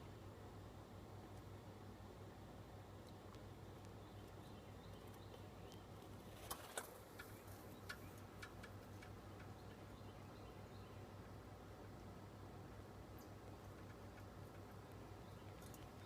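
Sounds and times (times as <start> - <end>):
low steady hum: 0.0 - 16.0
faint sharp clicks: 5.0 - 9.6.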